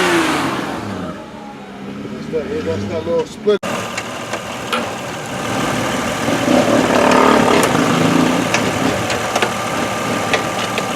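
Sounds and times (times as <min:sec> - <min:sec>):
car engine running: 0:03.6 - 0:10.9.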